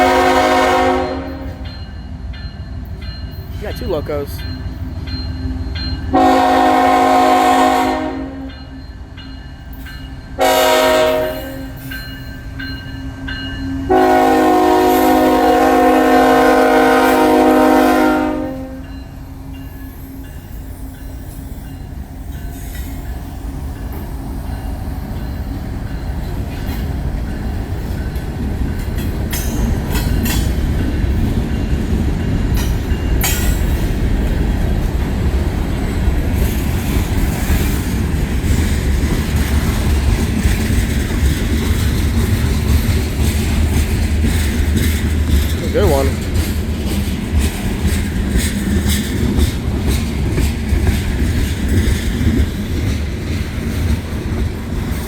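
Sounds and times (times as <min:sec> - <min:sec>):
locomotive air horn blasts: 0:00.0 - 0:01.6, 0:06.1 - 0:08.5, 0:10.4 - 0:11.8, 0:13.9 - 0:18.9
diesel locomotives rumbling: 0:00.0 - 0:55.0.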